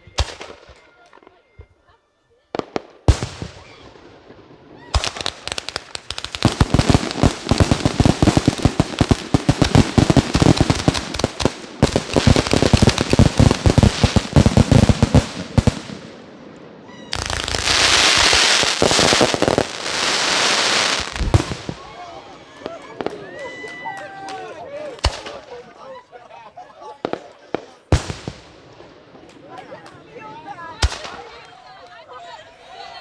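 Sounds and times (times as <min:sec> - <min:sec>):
fireworks crackling barrage: 0:00.0 - 0:01.6, 0:02.5 - 0:25.9, 0:26.9 - 0:33.0
firework bang: 0:17.2 - 0:22.0.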